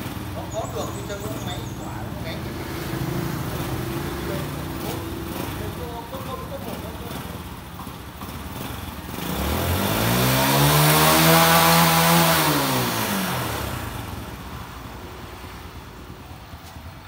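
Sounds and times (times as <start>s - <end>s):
vehicle engine passing by: 0.0s - 7.4s, 8.6s - 14.3s.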